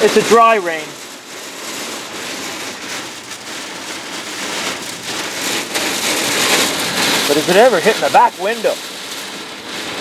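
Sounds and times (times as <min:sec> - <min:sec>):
heavy rain on vehicle roof: 0:00.0 - 0:10.0.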